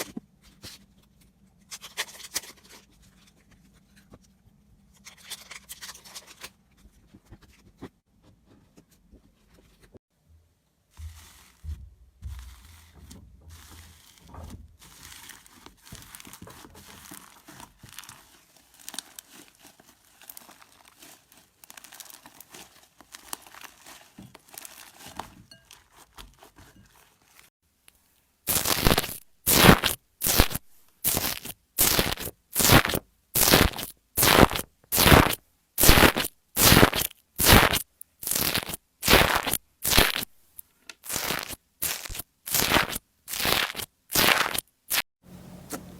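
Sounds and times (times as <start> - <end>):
slime sticky crackling: 14.8 - 25.2, 28.5 - 40.3, 41.0 - 45.0
crunchy slime squeezes: 14.9 - 25.1, 28.5 - 40.3, 41.0 - 45.0.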